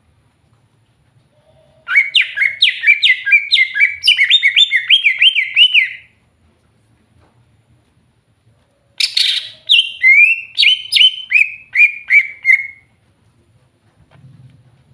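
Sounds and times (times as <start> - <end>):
bird whistling song: 1.8 - 6.1, 9.0 - 12.9.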